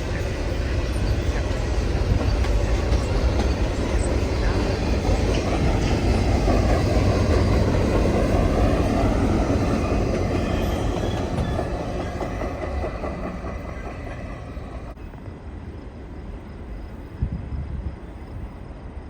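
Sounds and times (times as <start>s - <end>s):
freight train clattering on rails: 0.0s - 15.2s.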